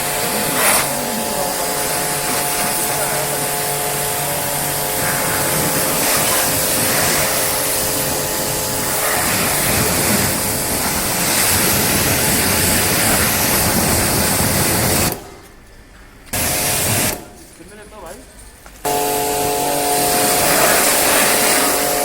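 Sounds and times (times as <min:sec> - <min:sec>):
pressure washer jet spraying: 0:00.0 - 0:15.3, 0:16.3 - 0:17.4, 0:18.8 - 0:22.0.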